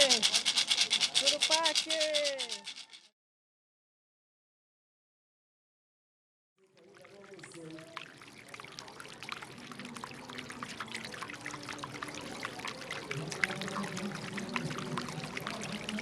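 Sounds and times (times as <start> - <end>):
water pouring and splashing: 0.0 - 2.5, 6.6 - 16.0.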